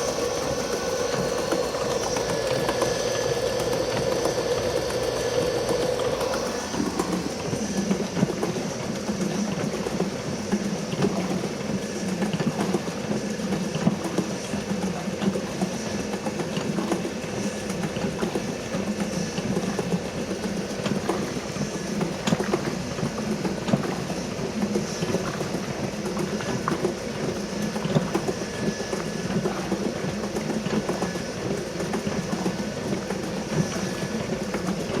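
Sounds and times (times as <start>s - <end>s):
electric motor running: 0.0s - 7.4s
washing machine clattering: 0.0s - 35.0s.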